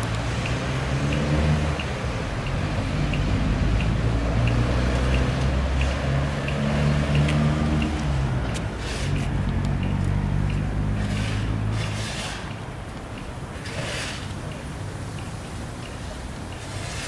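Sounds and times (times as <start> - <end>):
diesel engine running: 0.0 - 12.4.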